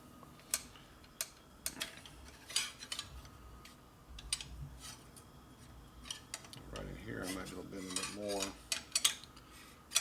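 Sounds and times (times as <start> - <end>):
metal line clicking and clinking: 6.0 - 10.0.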